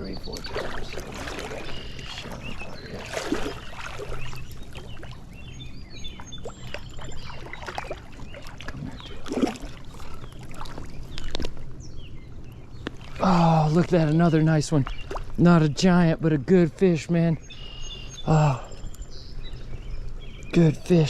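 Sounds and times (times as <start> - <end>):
fish splashing in water: 0.3 - 5.4, 6.2 - 11.8.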